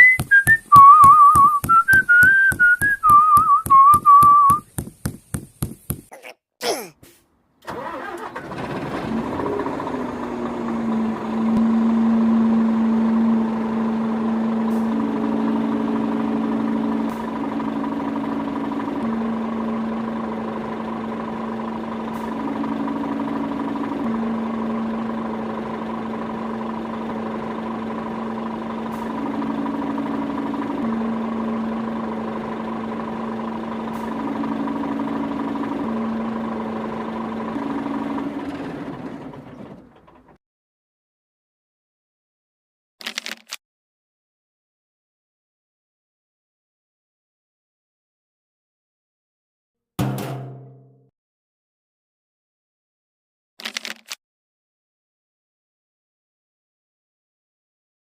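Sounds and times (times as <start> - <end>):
whistled tune: 0.0 - 4.7
engine running: 0.0 - 6.1, 7.6 - 40.4.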